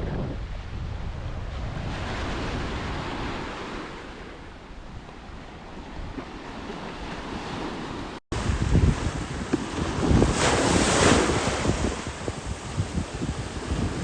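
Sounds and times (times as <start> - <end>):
wind rumbling on microphone: 0.0 - 14.0
ocean surf washing onto beach: 5.8 - 14.0.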